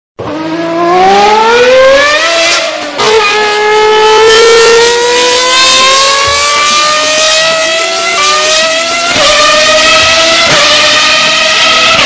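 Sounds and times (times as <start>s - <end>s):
motorcycle engine accelerating: 0.2s - 12.0s.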